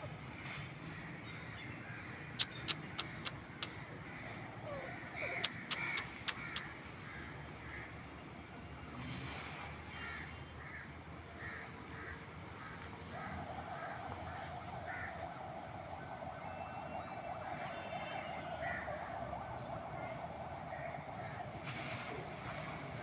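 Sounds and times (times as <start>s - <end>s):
bird harsh calls: 2.4s - 3.7s, 4.7s - 6.6s
steady droning: 13.1s - 23.0s.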